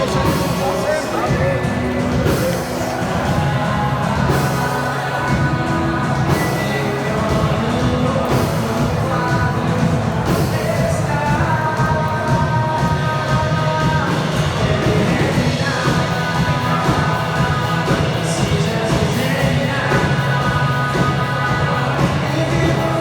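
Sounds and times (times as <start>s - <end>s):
band playing rock song: 0.0s - 23.0s
person singing: 0.0s - 23.0s.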